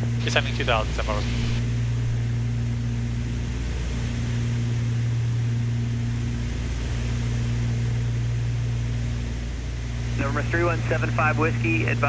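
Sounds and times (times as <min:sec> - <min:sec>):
rushing air noise: 0:00.0 - 0:02.6
propeller aircraft engines droning: 0:00.0 - 0:12.0.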